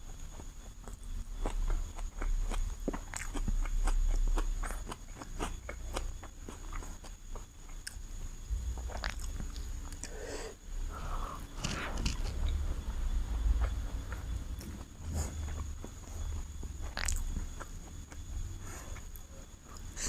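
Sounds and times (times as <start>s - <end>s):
chewing mouth clicks and smacks: 0.8s - 8.0s, 8.9s - 10.2s, 13.6s - 18.2s.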